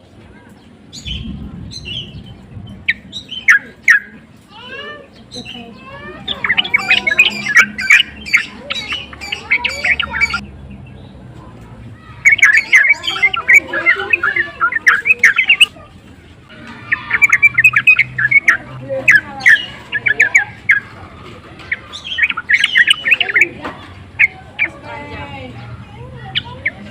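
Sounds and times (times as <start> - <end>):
bulbul singing chattering notes: 0.9 - 11.1, 12.2 - 15.8, 16.8 - 21.0, 21.6 - 25.0.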